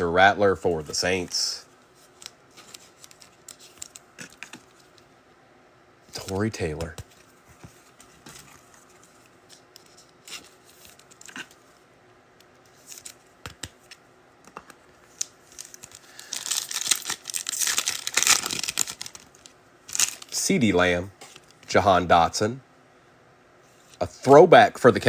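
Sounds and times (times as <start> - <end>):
cards clicking and tapping: 6.2 - 7.2, 12.9 - 15.9
foil card pack tearing and crinkling: 15.1 - 20.4.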